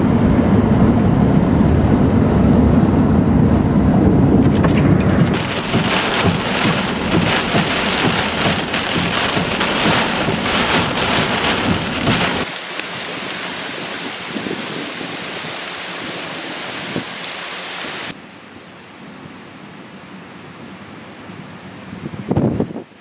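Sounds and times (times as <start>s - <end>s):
wind buffeting microphone: 0.0s - 18.2s, 21.8s - 23.0s
gusty wind: 0.0s - 23.0s
heavy rain hiss: 4.6s - 21.2s.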